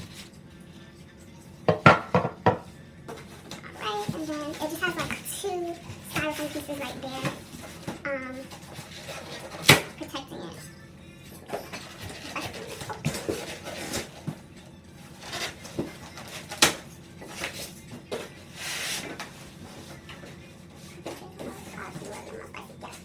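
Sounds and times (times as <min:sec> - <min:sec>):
scraping rustle of packing: 0:03.1 - 0:10.0, 0:11.4 - 0:23.0.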